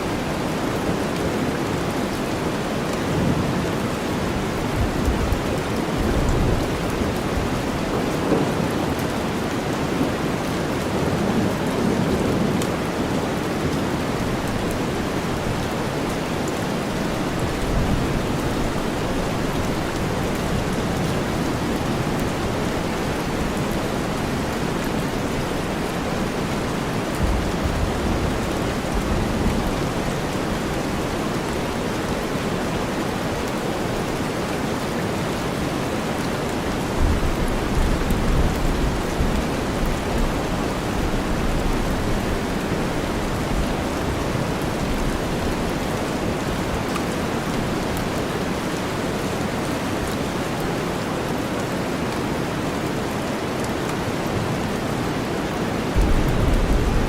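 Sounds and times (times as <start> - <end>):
steady rain: 0.0 - 57.0
low rumbles: 56.0 - 57.0.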